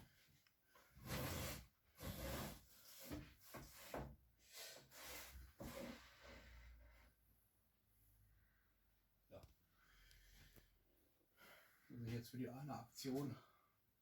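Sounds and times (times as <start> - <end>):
faint rubbing and scraping: 0.8 - 7.2.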